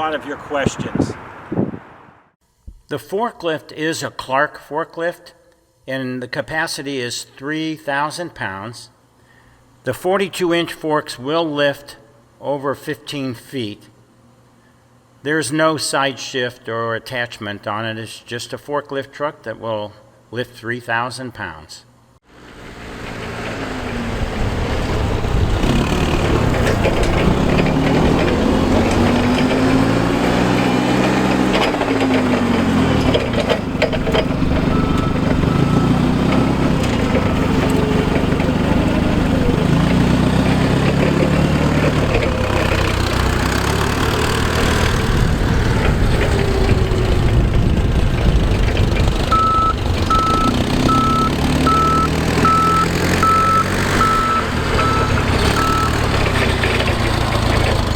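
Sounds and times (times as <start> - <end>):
forklift engine running: 22.3 - 57.9
reversing beeper: 34.5 - 38.1, 49.3 - 56.0.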